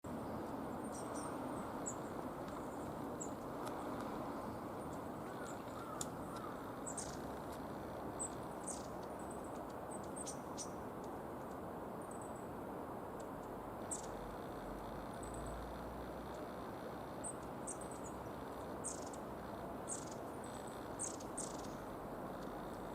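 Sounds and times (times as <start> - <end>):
steady low hum: 0.0 - 22.9
small birds calling: 0.1 - 12.5, 13.2 - 14.4, 15.0 - 22.9.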